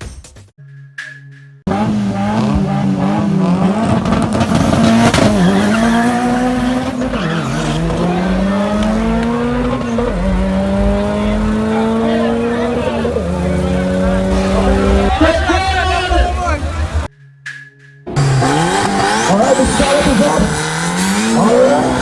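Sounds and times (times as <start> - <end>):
drag racing car accelerating: 1.7 - 17.1, 18.1 - 22.0.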